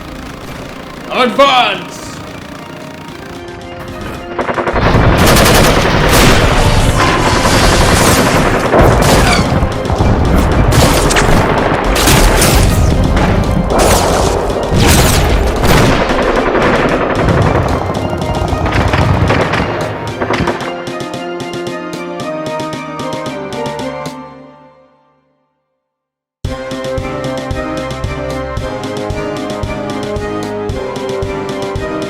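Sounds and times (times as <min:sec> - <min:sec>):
rapid gunfire: 0:00.0 - 0:21.0
action music: 0:00.0 - 0:24.2.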